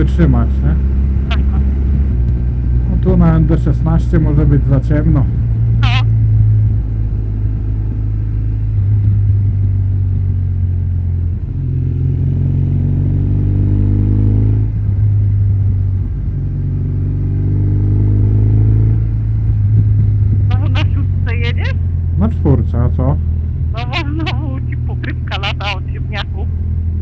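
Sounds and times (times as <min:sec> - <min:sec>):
motorcycle engine droning: 0:00.0 - 0:27.0.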